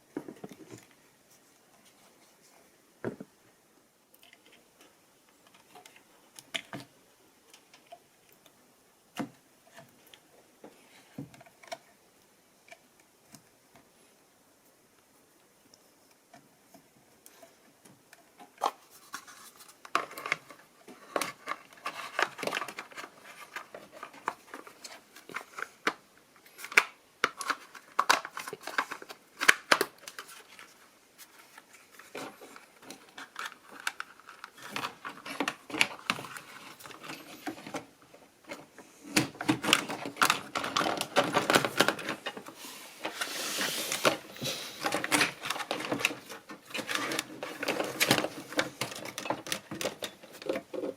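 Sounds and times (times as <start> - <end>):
plastic parts clicking and scraping: 16.3 - 50.9.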